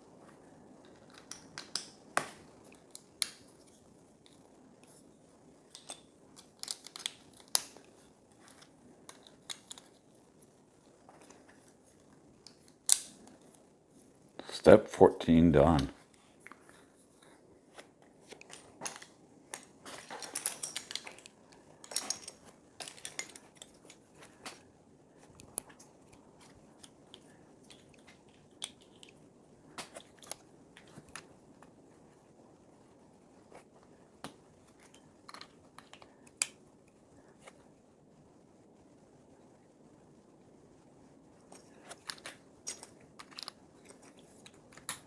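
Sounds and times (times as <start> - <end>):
plastic pieces clicking together: 0.8 - 3.4, 5.7 - 7.9, 8.5 - 9.9, 18.3 - 24.6, 34.7 - 36.6, 41.5 - 45.0
plastic pieces rustling: 18.4 - 24.6.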